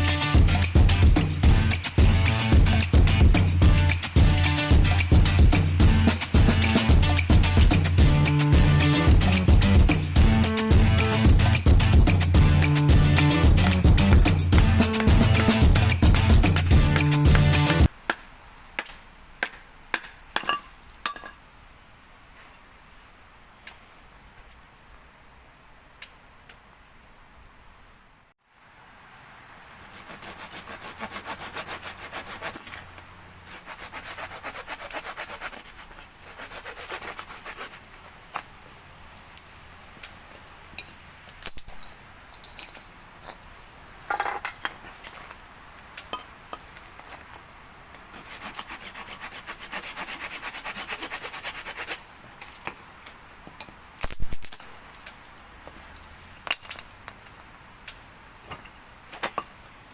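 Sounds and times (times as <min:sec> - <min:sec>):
hand saw cutting wood: 0:29.8 - 0:32.8, 0:33.5 - 0:38.2, 0:48.2 - 0:52.0.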